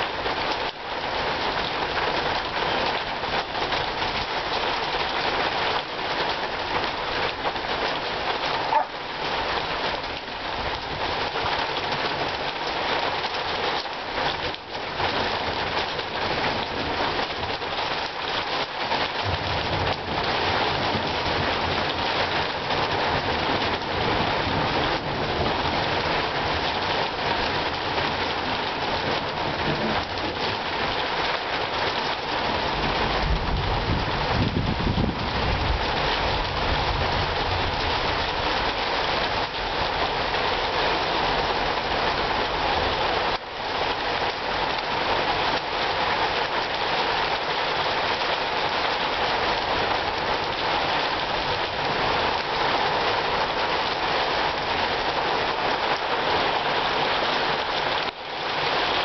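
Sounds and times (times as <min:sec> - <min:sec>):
steady rain: 0:00.0 - 0:59.0
low thunder rumble: 0:32.8 - 0:38.2.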